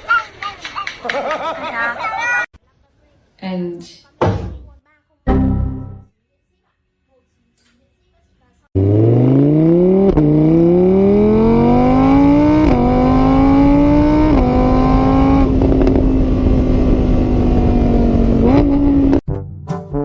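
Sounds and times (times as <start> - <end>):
car engine accelerating: 8.8 - 19.2.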